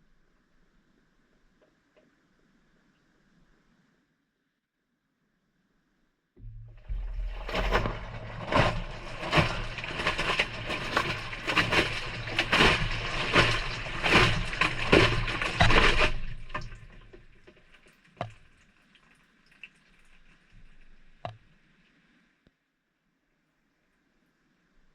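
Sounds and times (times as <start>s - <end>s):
washing machine motor hum: 6.4s - 17.1s
water sloshing in washing machine: 6.4s - 18.6s.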